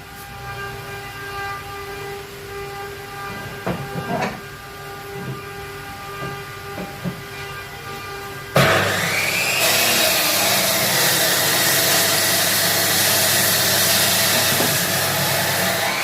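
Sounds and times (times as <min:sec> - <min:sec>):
power tool motor whining: 0:08.6 - 0:16.0.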